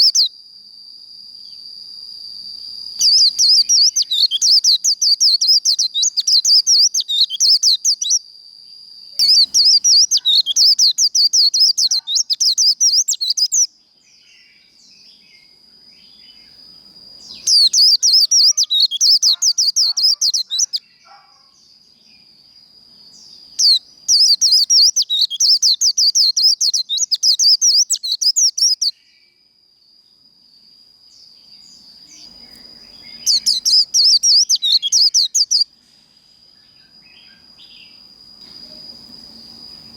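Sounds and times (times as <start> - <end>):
bird rapid high twittering: 0.0 - 0.3, 3.0 - 8.2, 9.2 - 13.7, 17.2 - 21.2, 23.5 - 28.9, 32.2 - 35.7
thin steady high tone: 0.0 - 21.2, 21.8 - 39.9.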